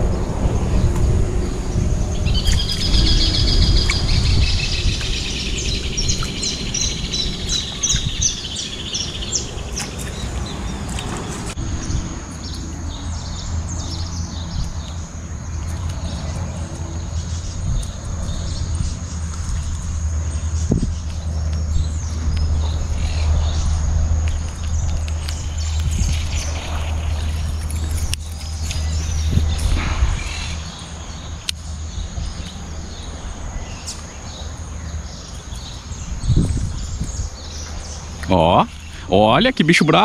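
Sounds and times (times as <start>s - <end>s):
songbird trilling song: 0.0s - 40.0s
steady low rumble: 0.0s - 40.0s
faint high bird chirps: 1.4s - 15.0s.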